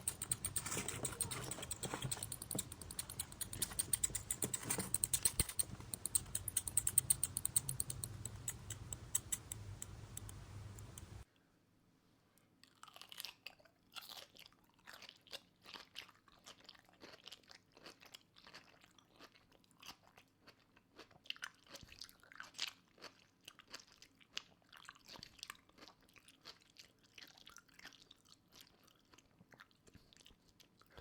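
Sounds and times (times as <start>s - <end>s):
mouse gnawing: 0.0s - 11.2s.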